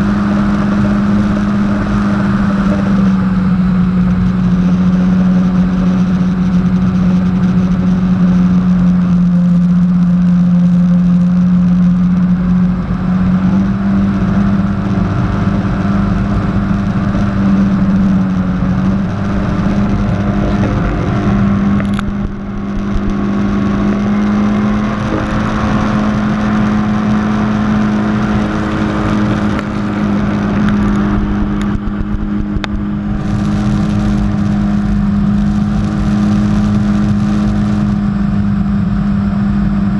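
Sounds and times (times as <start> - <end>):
jet ski engine drone: 0.0 - 39.9
water rushing: 9.5 - 38.0.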